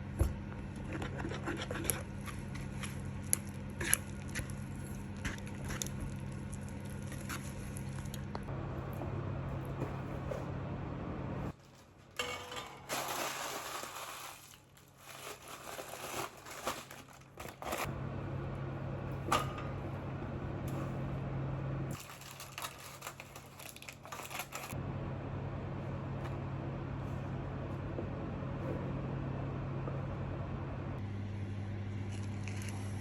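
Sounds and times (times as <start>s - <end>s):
low appliance hum: 0.0s - 33.0s
rustling and scraping handling: 11.4s - 17.9s, 21.9s - 24.8s.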